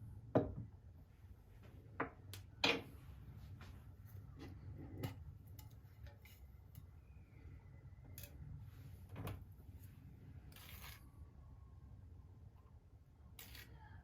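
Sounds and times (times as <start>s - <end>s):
low steady hum: 0.0s - 14.0s
small objects clicking and knocking: 10.5s - 11.1s, 13.4s - 13.9s.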